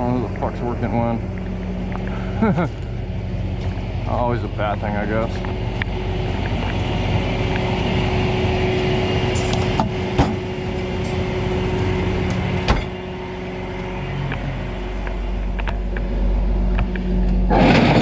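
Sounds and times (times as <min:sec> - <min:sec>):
truck engine humming: 0:00.0 - 0:18.0.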